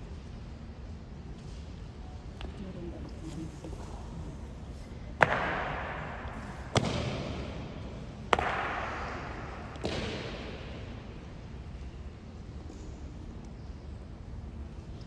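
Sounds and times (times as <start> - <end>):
rifle impacts echoing in hall: 5.2 - 12.0.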